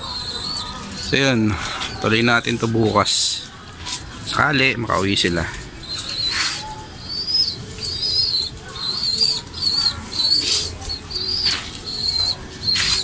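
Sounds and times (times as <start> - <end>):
bird chirping: 0.0 - 2.5, 5.8 - 13.0.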